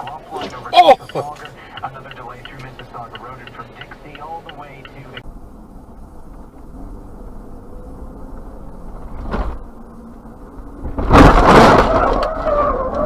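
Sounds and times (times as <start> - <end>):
road noise inside car: 0.0 - 13.0
car crash impact: 10.8 - 13.0.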